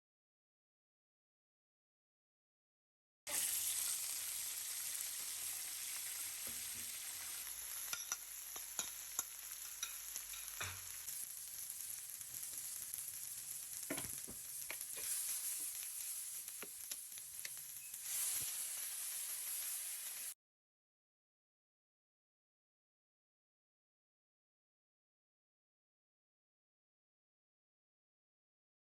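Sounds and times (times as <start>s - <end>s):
food sizzling in a frying pan: 3.3s - 20.4s
utensil tapping a pan: 7.9s - 11.0s, 13.9s - 15.1s.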